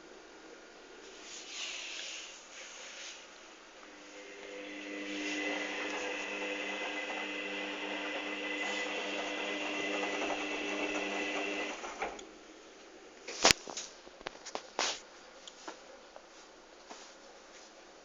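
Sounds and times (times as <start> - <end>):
washing machine motor whining hum: 3.1 - 12.6.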